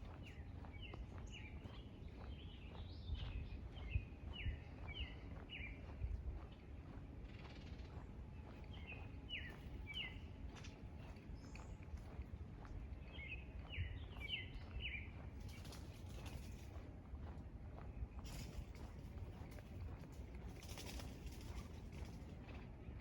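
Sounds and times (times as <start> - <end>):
songbird chirping: 8.7 - 10.3.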